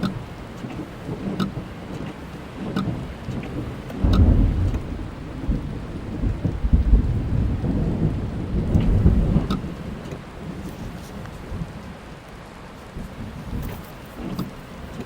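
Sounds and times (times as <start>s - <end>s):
rain falling on car: 0.0s - 15.0s
raindrop ticks: 0.0s - 15.0s
thunder rumbling: 0.2s - 11.9s.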